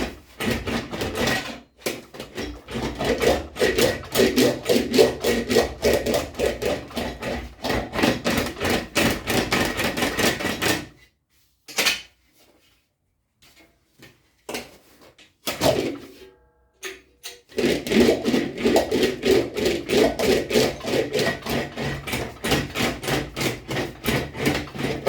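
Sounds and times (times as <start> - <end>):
metal sheet being worked by hand: 0.0 - 11.0, 17.2 - 25.0.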